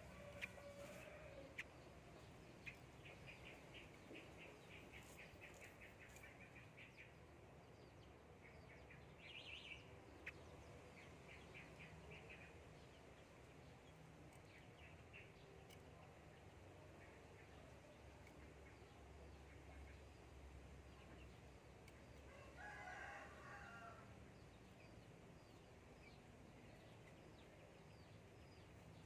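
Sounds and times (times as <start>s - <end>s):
small bird chirping rapidly: 0.0s - 7.1s.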